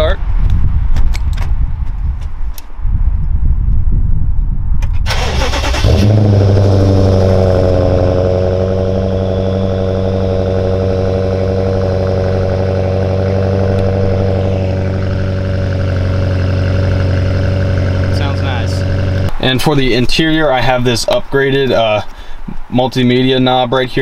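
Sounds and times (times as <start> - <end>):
starter motor cranking: 5.1 - 6.4
car engine idling: 5.1 - 19.4.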